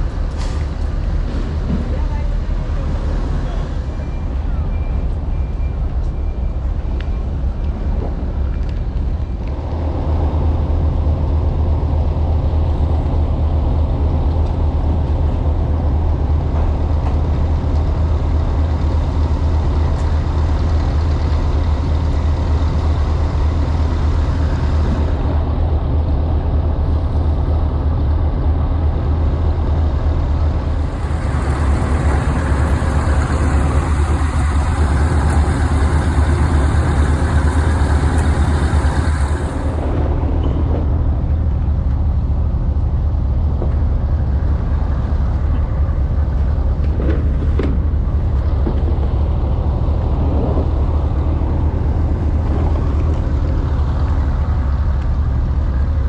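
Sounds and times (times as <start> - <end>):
large engine droning: 0.0 - 56.0.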